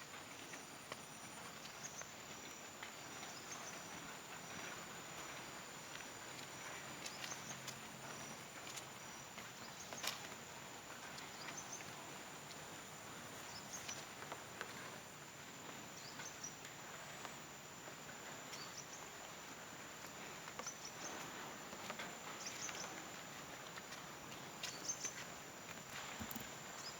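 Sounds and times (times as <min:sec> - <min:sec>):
insect chirps: 0:22.2 - 0:26.9.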